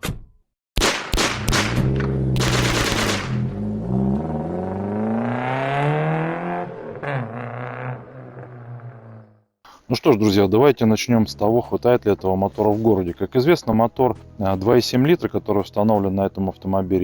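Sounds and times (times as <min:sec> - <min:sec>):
sharp bangs: 0:00.8 - 0:03.7
car engine accelerating: 0:01.7 - 0:09.4.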